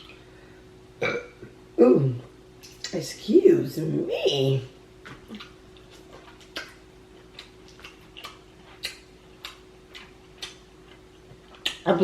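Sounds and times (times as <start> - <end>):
faint steady hum: 0.0 - 12.0
person chewing with lip smacks: 5.0 - 11.9.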